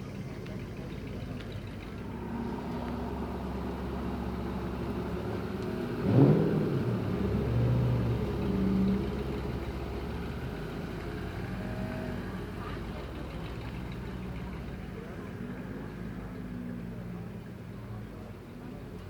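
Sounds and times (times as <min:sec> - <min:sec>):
car engine running: 0:00.0 - 0:15.3
sharp engine rev: 0:06.0 - 0:08.0.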